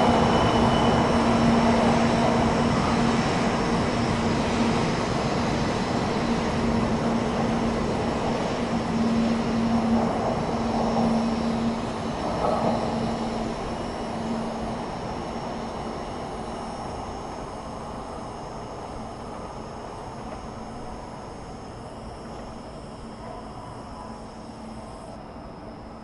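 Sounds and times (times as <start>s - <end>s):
high-speed train rushing: 0.0s - 26.0s.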